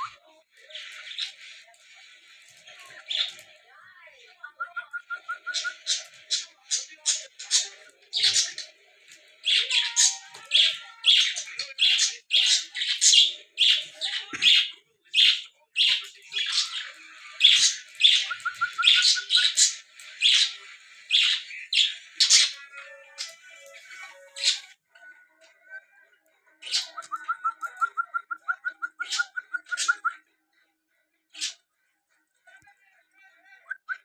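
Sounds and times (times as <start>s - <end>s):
partridges calling: 4.4s - 24.7s, 26.6s - 30.2s.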